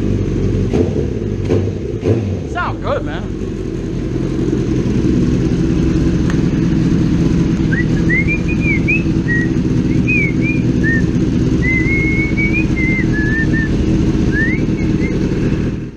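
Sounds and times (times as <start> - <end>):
motorcycle engine idling: 0.0 - 2.0, 2.6 - 15.9
person whistling a tune: 7.7 - 15.4.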